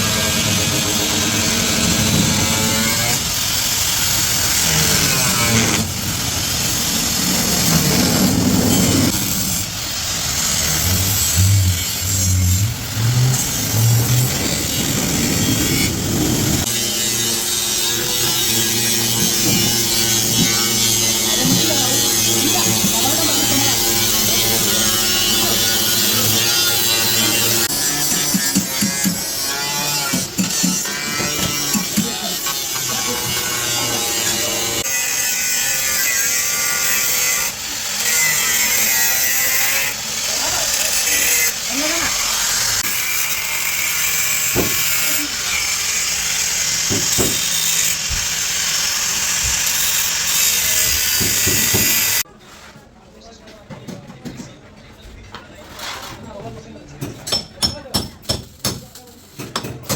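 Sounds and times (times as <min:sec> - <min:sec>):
electric motor hum: 0:00.0 - 0:18.3
power tool grinding sheet steel: 0:00.0 - 0:52.3
rough mechanical noise: 0:00.0 - 0:52.3.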